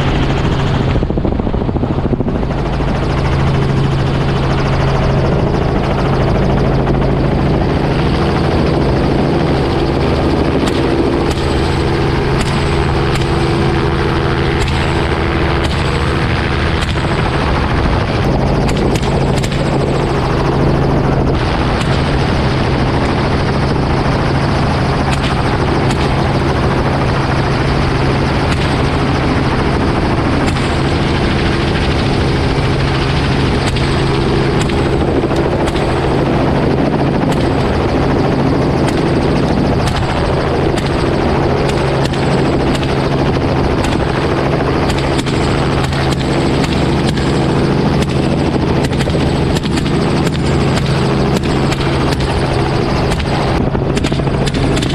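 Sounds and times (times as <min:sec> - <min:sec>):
helicopter flying: 0:00.0 - 0:54.9
rifle fire cracks: 0:10.6 - 0:16.2, 0:39.8 - 0:47.4.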